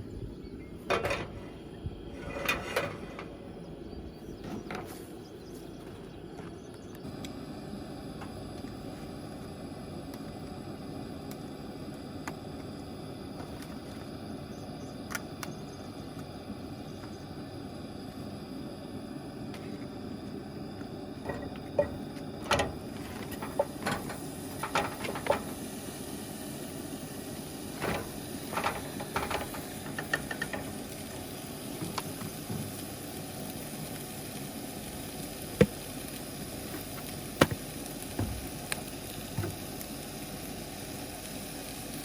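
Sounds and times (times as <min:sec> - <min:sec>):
cooking fire hissing: 0:00.0 - 0:42.0.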